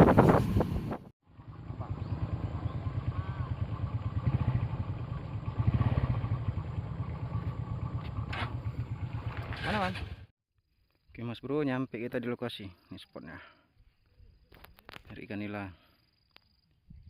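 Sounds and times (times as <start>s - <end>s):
small motorcycle engine running: 1.2s - 10.3s.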